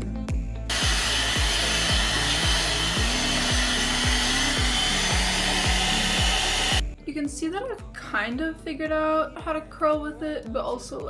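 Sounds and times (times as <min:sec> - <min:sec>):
pop music with kick-drum beat: 0:00.0 - 0:10.8
hot-air styling tool blowing: 0:00.7 - 0:06.8.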